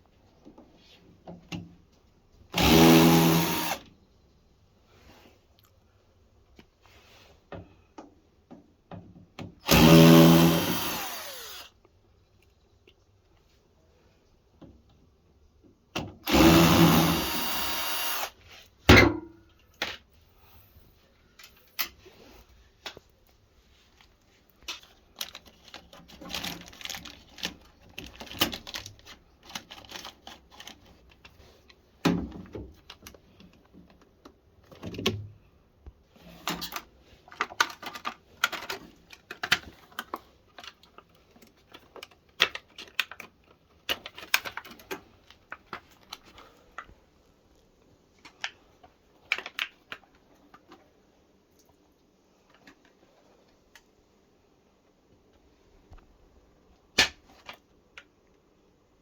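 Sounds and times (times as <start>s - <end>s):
power tool motor running: 2.6s - 3.8s, 9.7s - 11.7s, 16.3s - 18.3s.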